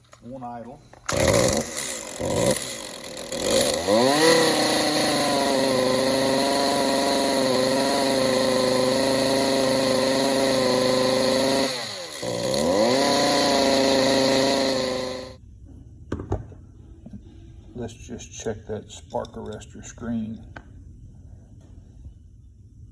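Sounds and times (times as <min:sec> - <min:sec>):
chainsaw engine running: 0:01.1 - 0:15.4.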